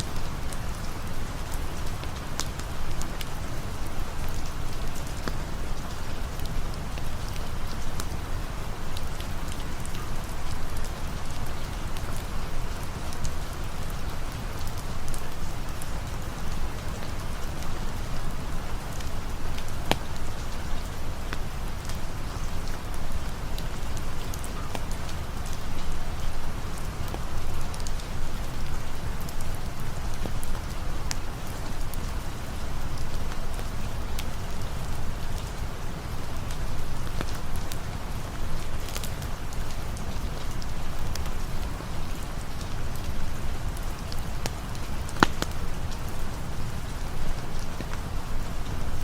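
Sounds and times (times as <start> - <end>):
rain falling: 0.0 - 49.0.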